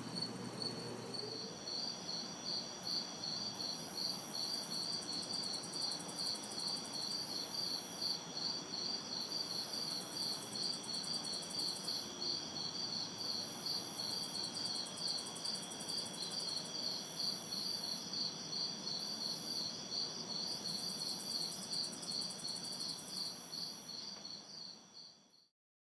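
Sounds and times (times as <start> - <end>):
distant city traffic hum: 0.0 - 1.8
crickets chirping: 0.0 - 25.5
insect buzz: 0.0 - 25.5.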